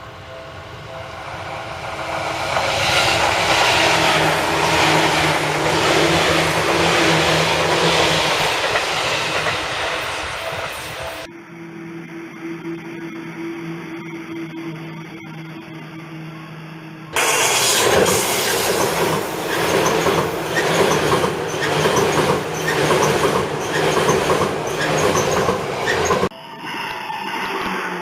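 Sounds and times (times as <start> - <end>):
electric train rushing past: 0.0 - 11.3, 17.2 - 28.0
wheels clattering over rail joints: 17.2 - 26.3.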